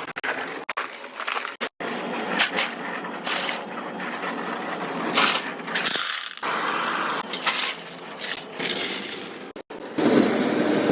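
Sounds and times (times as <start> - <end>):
metalworking machinery running: 1.8 - 10.9.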